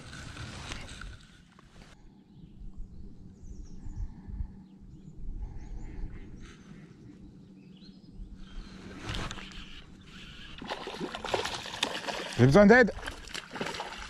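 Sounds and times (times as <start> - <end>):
steady low rumble: 1.9 - 10.1
small birds chirping: 2.2 - 10.8.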